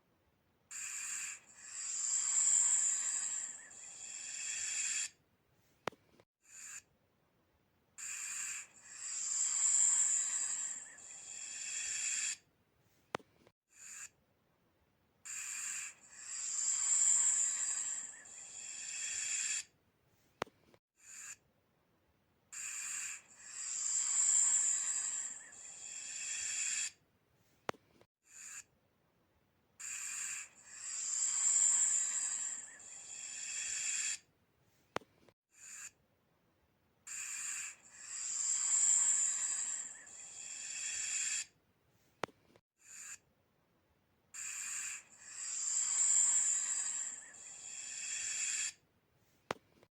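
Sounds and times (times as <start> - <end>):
snake hissing: 0.7 - 5.2, 8.0 - 12.4, 15.3 - 19.7, 22.6 - 27.0, 29.8 - 34.2, 37.1 - 41.5, 44.4 - 48.8.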